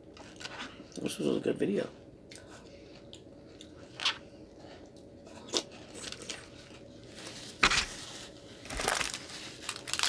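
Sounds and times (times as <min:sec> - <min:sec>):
food packaging rustling and clicking: 0:06.0 - 0:10.0.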